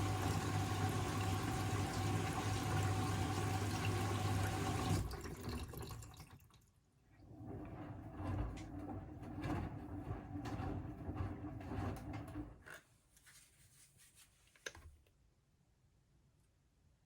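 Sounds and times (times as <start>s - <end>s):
washing machine drum turning: 7.4s - 12.6s.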